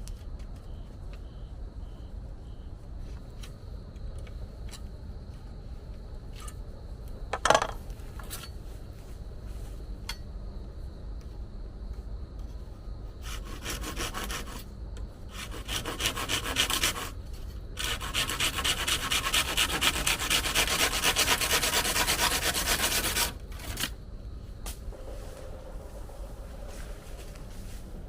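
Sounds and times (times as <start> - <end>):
tool scraping wood: 13.2 - 14.7, 15.3 - 24.0.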